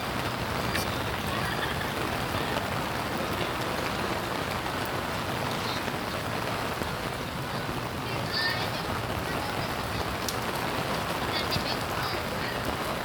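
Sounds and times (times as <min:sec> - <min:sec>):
rain pattering: 0:00.0 - 0:13.0.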